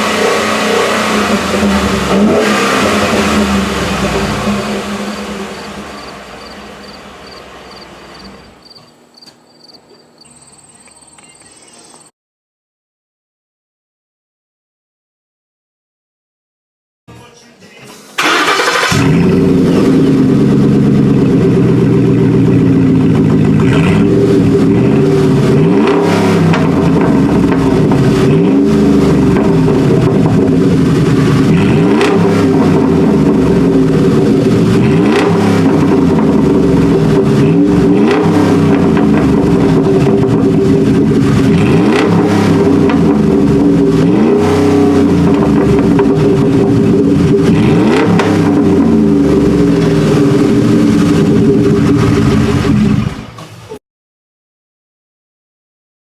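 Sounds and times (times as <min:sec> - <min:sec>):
engine idling and revving: 0:00.0 - 0:08.7, 0:18.2 - 0:53.8.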